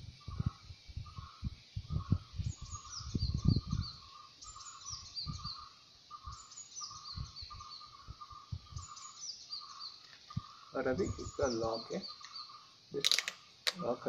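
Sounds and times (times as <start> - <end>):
lower bird chirps: 0.0 - 14.0.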